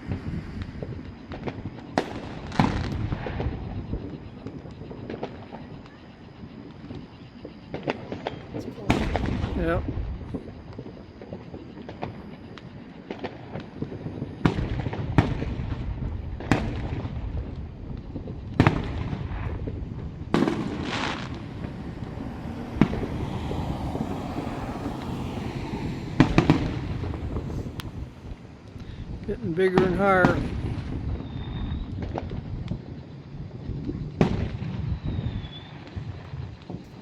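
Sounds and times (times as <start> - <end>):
fireworks bangs: 0.0 - 37.0
fireworks crackling: 0.0 - 37.0
low rumble: 17.1 - 29.4.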